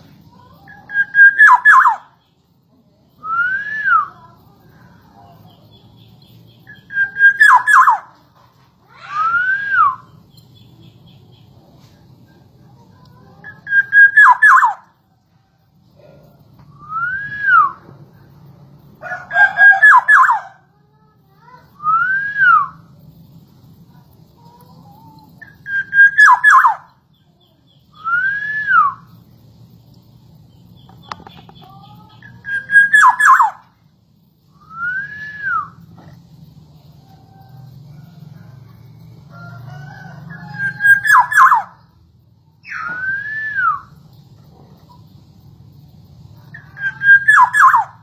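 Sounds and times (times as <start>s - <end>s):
bird calling with fluty whistles: 0.7s - 2.3s, 3.2s - 4.3s, 6.6s - 8.2s, 8.9s - 10.7s, 13.4s - 14.9s, 16.7s - 17.8s, 19.3s - 20.6s, 21.8s - 22.9s, 25.4s - 27.0s, 27.7s - 29.1s, 31.0s - 33.7s, 34.5s - 35.9s, 40.4s - 41.9s, 42.6s - 44.0s, 46.5s - 48.0s.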